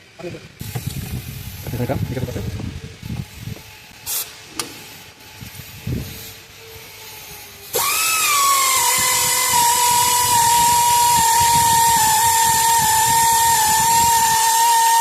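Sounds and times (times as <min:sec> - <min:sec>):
hiss: 0:03.2 - 0:15.0
power tool motor whining: 0:04.6 - 0:15.0.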